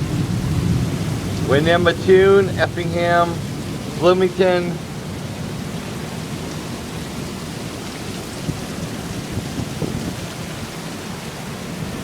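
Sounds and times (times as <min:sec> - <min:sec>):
raindrop ticks: 0:00.0 - 0:06.8
heavy rain falling: 0:00.0 - 0:12.0.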